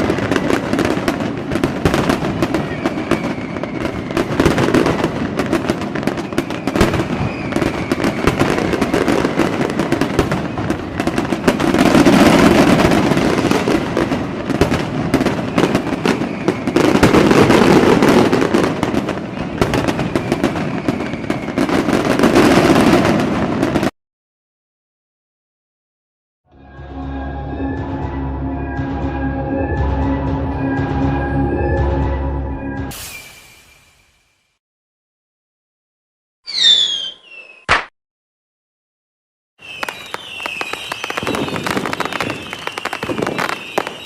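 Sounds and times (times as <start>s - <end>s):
fireworks whistling: 0.0s - 23.9s, 30.6s - 34.6s, 36.4s - 37.9s, 39.6s - 44.0s
fireworks crackling and popping: 0.0s - 24.0s, 36.5s - 37.9s, 39.6s - 44.0s.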